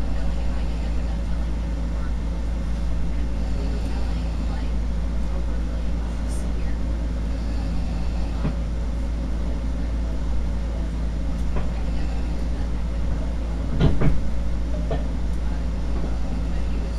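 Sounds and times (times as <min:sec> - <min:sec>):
train rumble and hum: 0:00.0 - 0:16.9
short knocks and clatters: 0:13.7 - 0:15.1.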